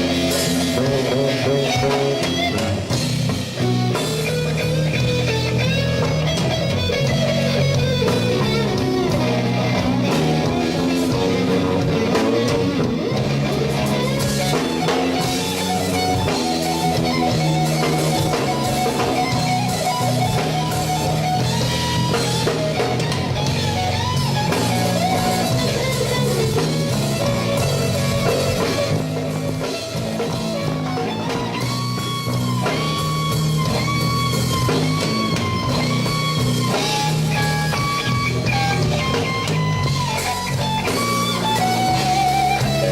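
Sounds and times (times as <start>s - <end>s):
electric guitar bent notes: 0.0s - 42.9s
slow blues band: 0.0s - 42.9s.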